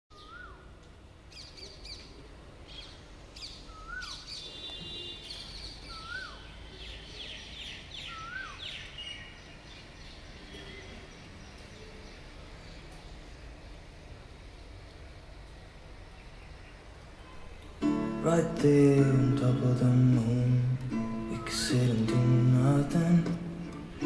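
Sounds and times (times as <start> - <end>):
chorus of bird chirps and trills: 0.2 - 0.6, 1.4 - 12.9
bird rising and falling call: 5.4 - 6.5, 8.0 - 9.2.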